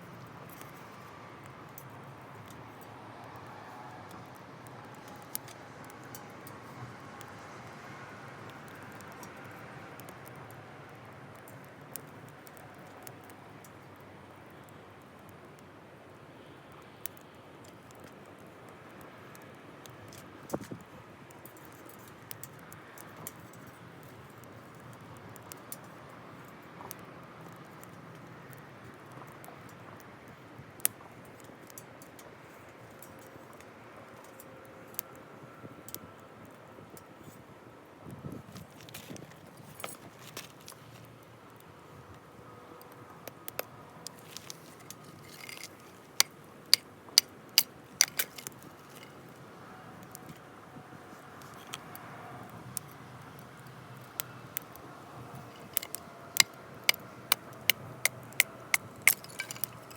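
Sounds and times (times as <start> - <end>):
campfire crackling: 0.1 - 59.9
sharp clicks and pops: 42.9 - 49.2, 52.8 - 59.9.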